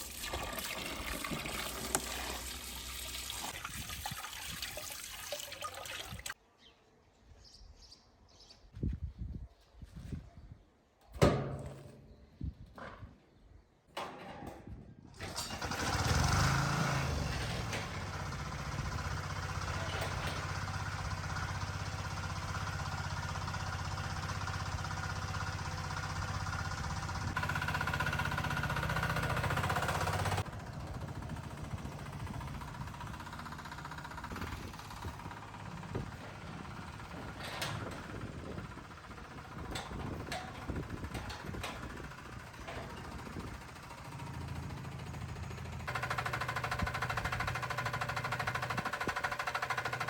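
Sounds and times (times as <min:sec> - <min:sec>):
small engine humming: 0:15.2 - 0:50.0.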